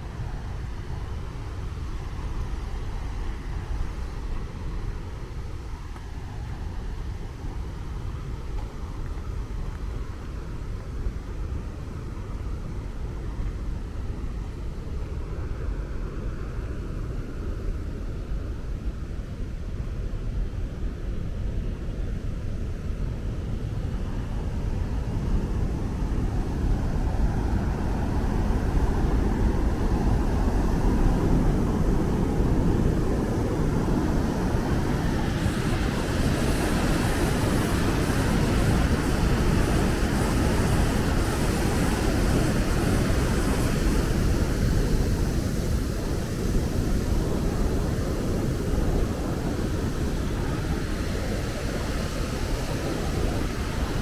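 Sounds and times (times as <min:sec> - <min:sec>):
low rushing noise: 0:23.4 - 0:54.0.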